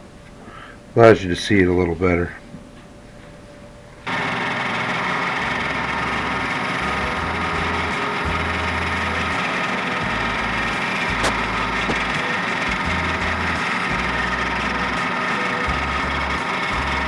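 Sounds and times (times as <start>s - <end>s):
milling machine running: 4.1s - 17.0s.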